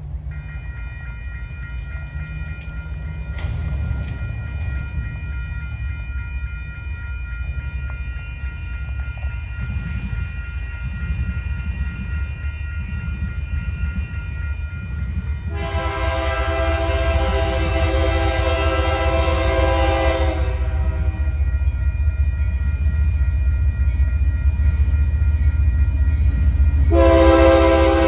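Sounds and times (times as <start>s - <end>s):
diesel locomotive rumble: 0.0s - 28.0s
train air horn blast: 15.5s - 21.2s, 26.9s - 28.0s.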